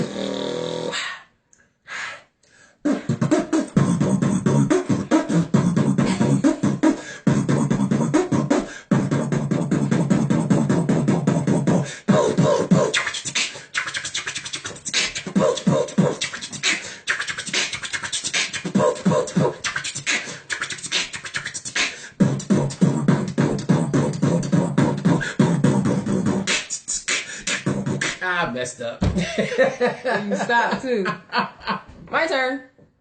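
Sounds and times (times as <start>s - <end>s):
person beatboxing: 2.8s - 28.6s
hummed bass line: 3.2s - 11.8s.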